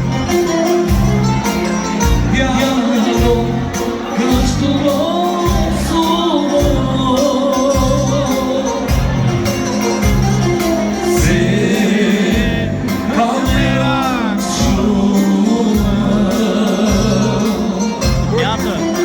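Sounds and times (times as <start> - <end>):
live band playing dance music: 0.0 - 19.0
heavy bass beat: 11.2 - 15.1.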